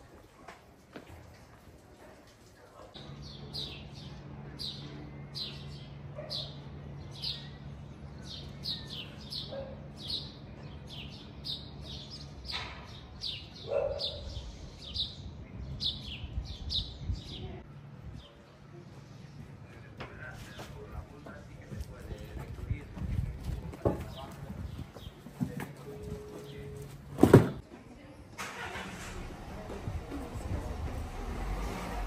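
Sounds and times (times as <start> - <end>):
small birds chirping: 2.6 - 25.3.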